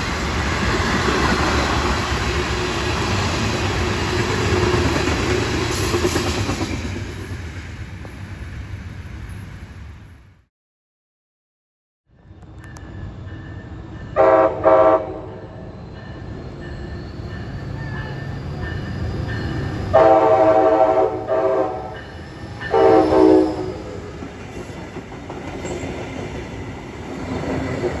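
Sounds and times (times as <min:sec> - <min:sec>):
train rumbling: 0:00.0 - 0:10.4, 0:12.2 - 0:28.0
locomotive horn blasts: 0:14.2 - 0:15.4, 0:20.0 - 0:22.0, 0:22.7 - 0:24.0.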